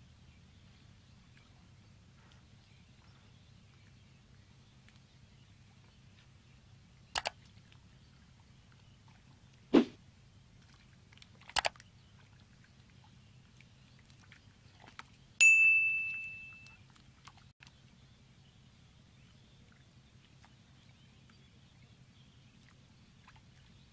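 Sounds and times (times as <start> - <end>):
bell-like ding: 15.4 - 16.8
faint background hum: 16.4 - 23.9.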